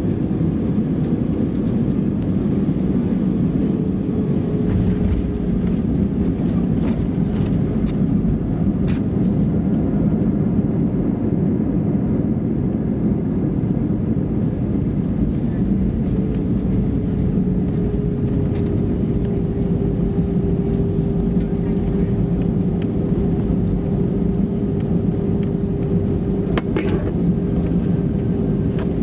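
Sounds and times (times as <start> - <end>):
airplane engines rumbling: 0.0 - 29.0
steady cabin hum: 15.0 - 29.0.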